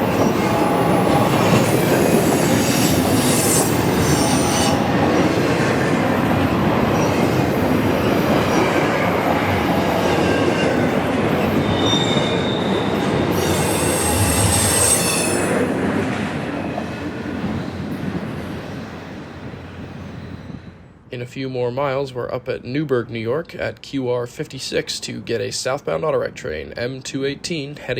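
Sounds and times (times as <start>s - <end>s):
train wheels squealing: 0.0s - 15.8s, 16.6s - 21.0s
freight train cars rolling: 0.0s - 27.5s.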